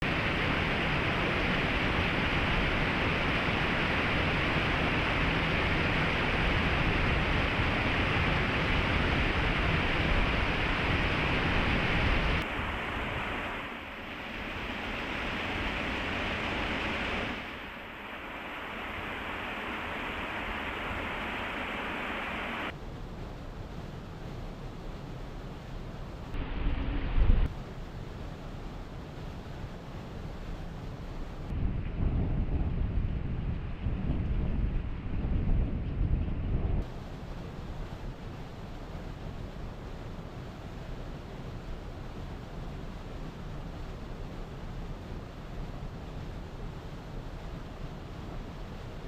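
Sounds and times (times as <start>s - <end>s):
waterfall rushing: 0.1s - 22.7s.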